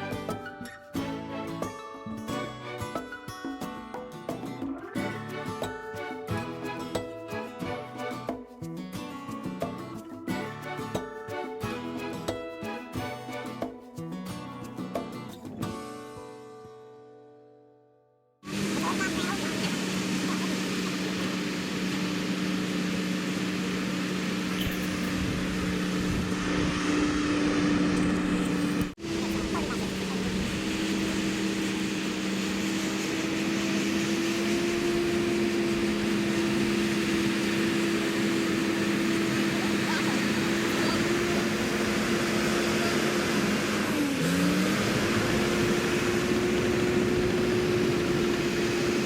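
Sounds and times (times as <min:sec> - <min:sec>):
bulldozer diesel engine running: 0:18.5 - 0:49.0.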